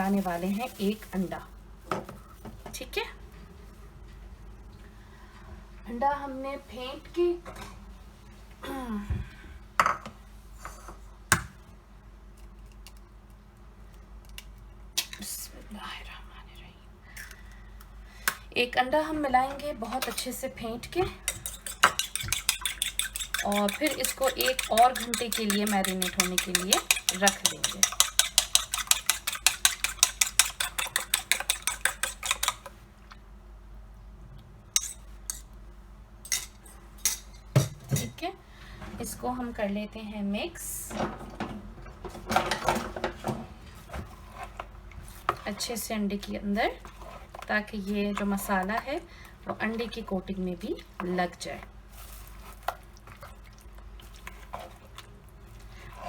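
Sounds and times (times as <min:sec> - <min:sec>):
person speaking: 0:00.0 - 0:01.5, 0:23.4 - 0:28.0
fork beating egg in bowl: 0:21.1 - 0:32.8, 0:34.8 - 0:35.5, 0:36.3 - 0:37.7
dishes clinking: 0:21.3 - 0:32.6.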